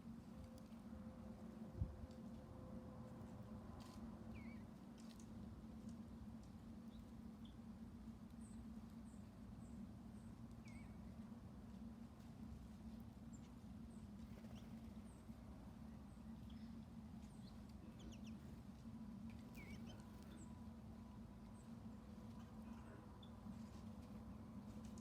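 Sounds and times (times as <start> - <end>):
steady low hum: 0.0 - 25.0
faint bird chirps: 4.3 - 4.7, 10.2 - 11.1, 19.4 - 20.6.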